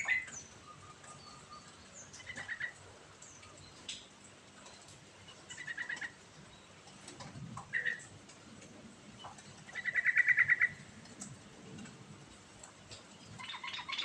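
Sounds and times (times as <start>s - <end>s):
bulbul singing trills: 0.0s - 3.9s.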